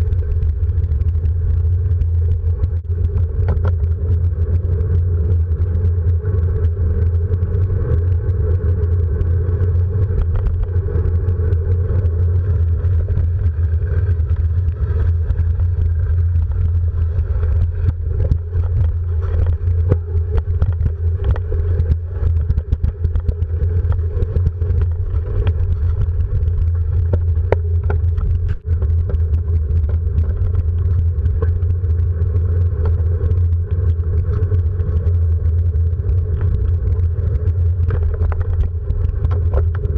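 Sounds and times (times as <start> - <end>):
vehicle engine running: 0.0 - 39.9
small knocks and rattles: 37.8 - 39.9.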